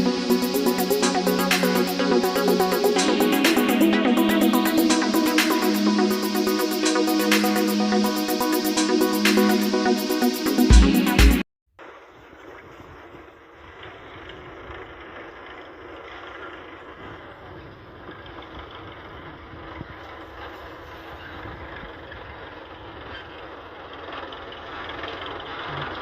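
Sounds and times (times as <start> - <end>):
tractor running: 13.8 - 26.0.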